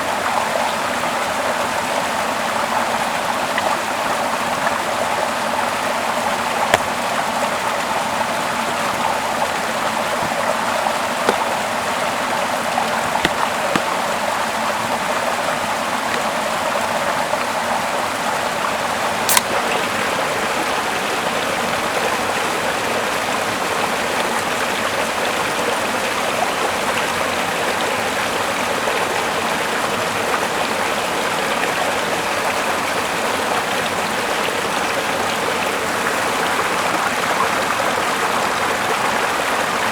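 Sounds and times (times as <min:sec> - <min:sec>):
river water rushing: 0:03.4 - 0:22.0
sharp clicks: 0:19.3 - 0:19.6.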